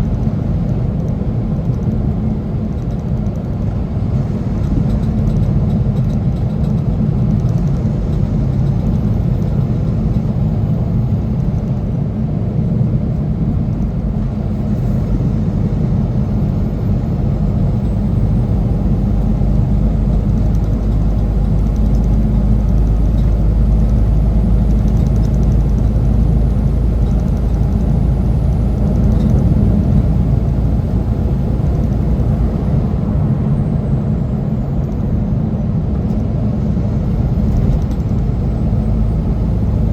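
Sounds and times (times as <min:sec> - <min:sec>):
truck engine and road noise: 0:00.0 - 0:39.9.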